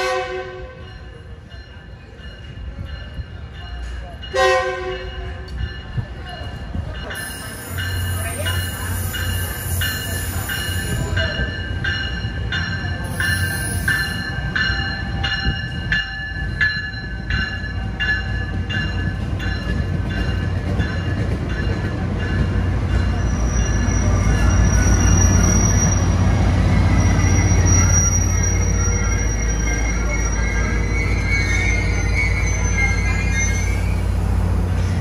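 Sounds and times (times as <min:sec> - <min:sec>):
train rumble: 0:00.0 - 0:35.0
locomotive whine: 0:03.3 - 0:35.0
bell ringing: 0:07.0 - 0:25.8.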